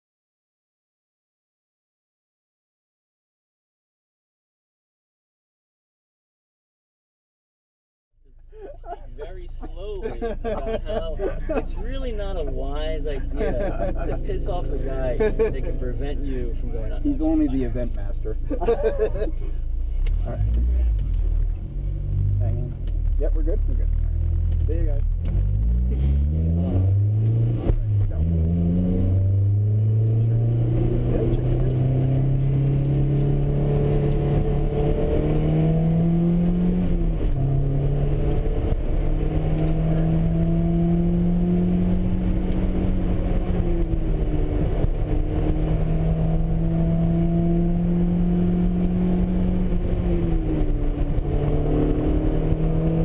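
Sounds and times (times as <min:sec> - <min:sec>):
car engine revving under throttle: 0:15.9 - 0:53.0.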